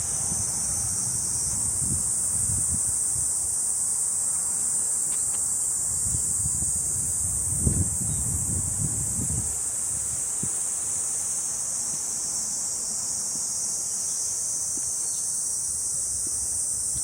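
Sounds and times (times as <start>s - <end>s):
cicadas chirping: 0.0s - 17.0s
faint footsteps on a trail: 14.1s - 17.0s.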